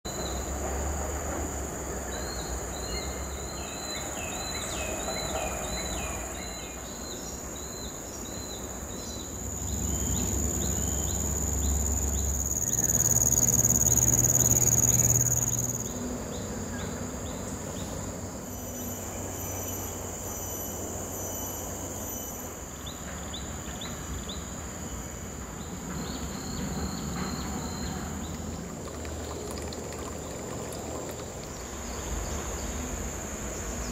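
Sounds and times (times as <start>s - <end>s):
insects droning: 0.1s - 33.9s.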